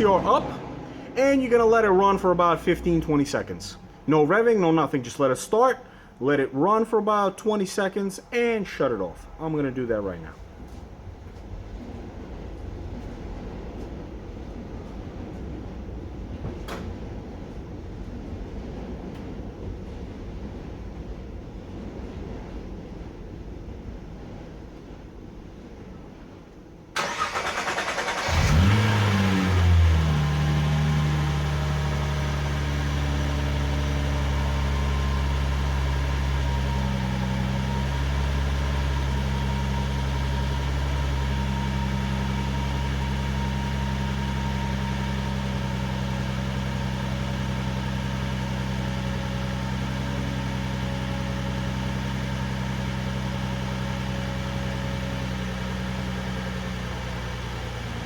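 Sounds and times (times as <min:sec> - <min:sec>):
starter motor cranking: 0:27.0 - 0:29.3
car engine idling: 0:27.0 - 0:58.0.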